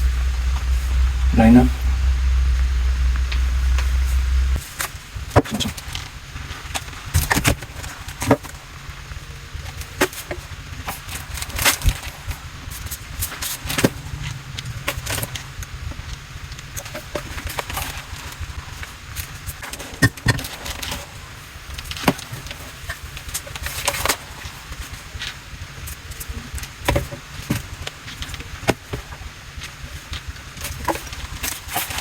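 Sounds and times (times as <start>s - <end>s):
low hum: 0.0s - 9.7s, 11.8s - 18.8s.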